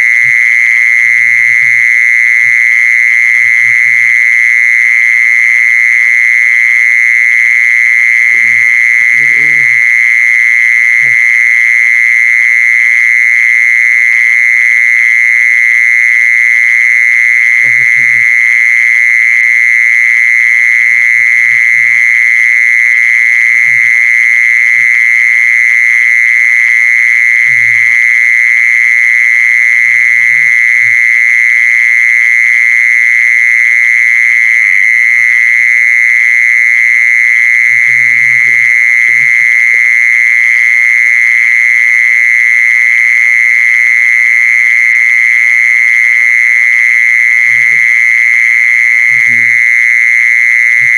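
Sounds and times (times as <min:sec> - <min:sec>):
insect high trill: 0:00.0 - 0:12.4, 0:17.5 - 0:18.5, 0:46.7 - 0:50.9.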